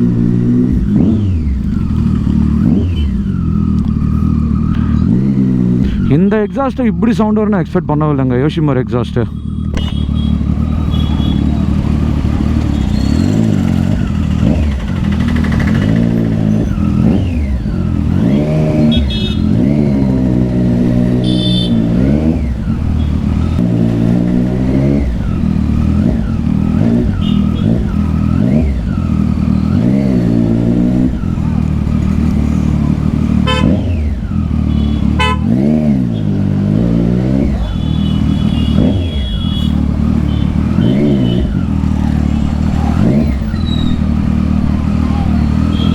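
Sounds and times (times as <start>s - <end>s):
motorcycle engine revving: 0.0s - 7.4s, 9.3s - 45.9s
vehicle horns tooting: 9.3s - 13.9s, 18.2s - 19.7s, 21.1s - 22.2s, 27.0s - 28.0s, 33.4s - 36.4s, 37.5s - 41.7s, 45.5s - 45.9s.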